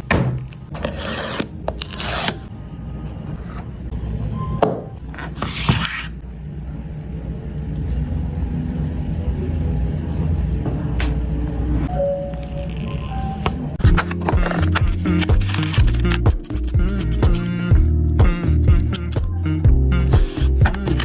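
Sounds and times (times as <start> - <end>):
cardboard packaging scraping: 0.8 - 2.4, 13.8 - 16.7.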